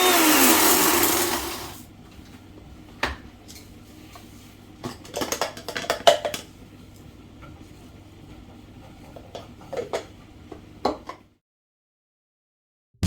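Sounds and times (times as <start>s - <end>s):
pots and utensils clattering: 3.0s - 6.6s, 8.8s - 10.2s.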